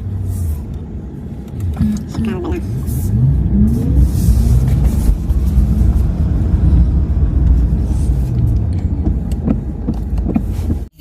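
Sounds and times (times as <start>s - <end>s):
road and tyre noise in car: 0.0s - 11.0s.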